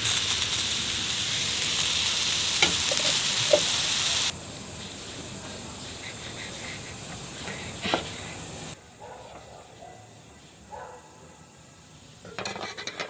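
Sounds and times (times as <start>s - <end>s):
food sizzling in a pan: 0.0s - 5.9s
utensils knocking on pan: 2.6s - 4.0s.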